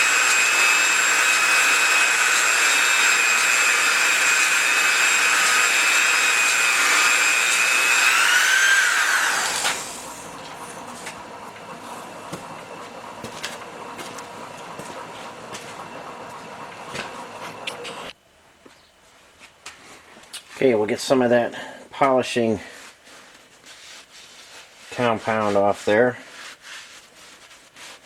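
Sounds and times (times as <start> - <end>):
belt polisher whining: 0.0 - 18.2.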